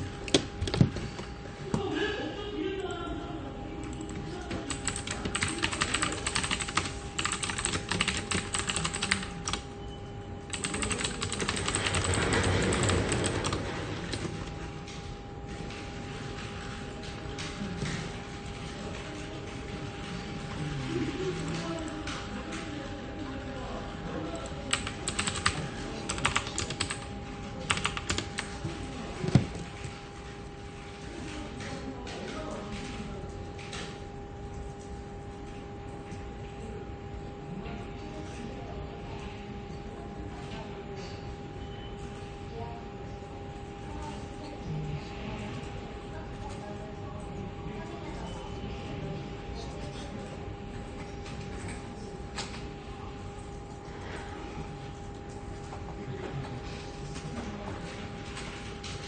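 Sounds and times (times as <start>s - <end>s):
office hum: 0.0s - 59.0s
rapid typing on keyboard: 3.8s - 9.7s, 10.5s - 14.6s, 24.3s - 29.9s.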